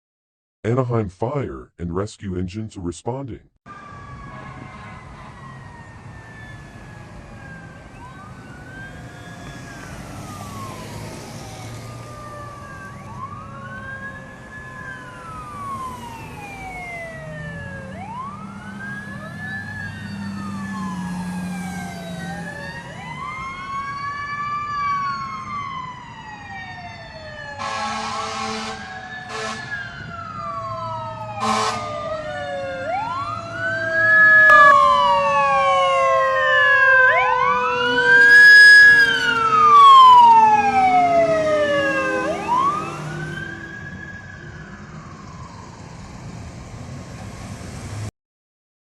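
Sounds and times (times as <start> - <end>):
fire engine siren wailing: 3.7 - 48.1
horn blasts: 27.6 - 29.8, 31.4 - 32.0, 34.5 - 35.0.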